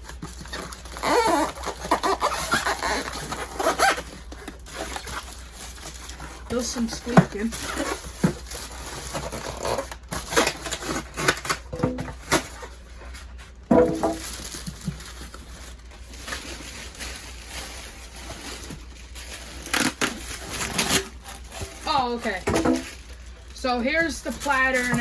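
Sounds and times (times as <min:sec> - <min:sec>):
packing crunching and rustling: 0:00.0 - 0:25.0
foam squeaking: 0:00.8 - 0:10.5.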